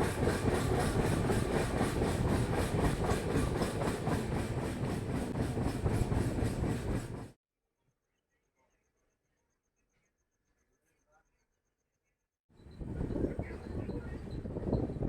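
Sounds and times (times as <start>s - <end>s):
train rumbling and rattling: 0.0s - 7.3s.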